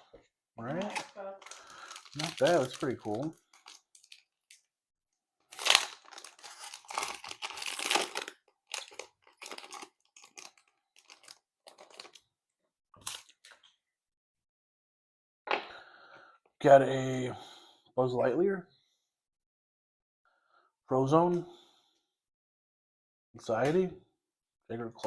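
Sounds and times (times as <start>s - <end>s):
foil pack crinkling: 0.7s - 4.2s, 5.5s - 12.2s.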